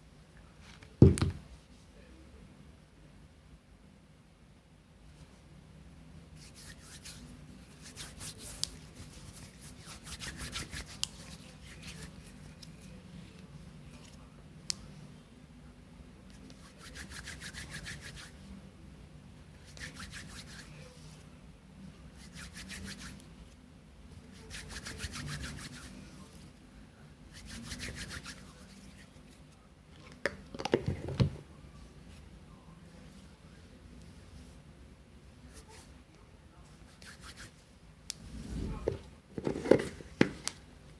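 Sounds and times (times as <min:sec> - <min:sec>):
close-up rubbing strokes: 0:06.4 - 0:13.3, 0:16.4 - 0:18.6, 0:19.6 - 0:21.3, 0:22.0 - 0:26.5, 0:27.3 - 0:29.6, 0:35.4 - 0:36.0, 0:36.7 - 0:39.0.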